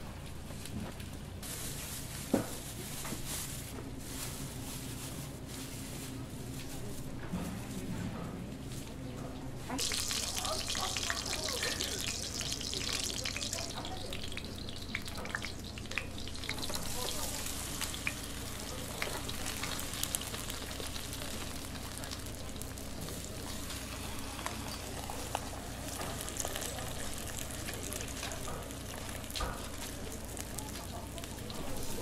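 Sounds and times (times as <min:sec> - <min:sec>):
food sizzling in hot oil: 0:09.7 - 0:32.0.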